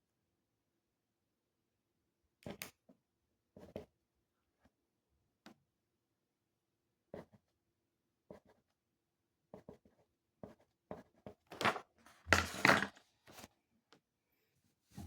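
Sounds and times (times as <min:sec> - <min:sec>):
pen scratching on paper: 0:08.3 - 0:08.7, 0:09.5 - 0:11.4.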